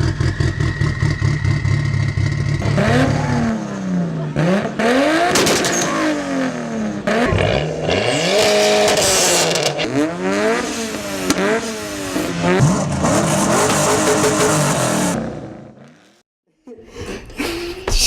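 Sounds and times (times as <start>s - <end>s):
car engine revving through gears: 0.0s - 16.2s.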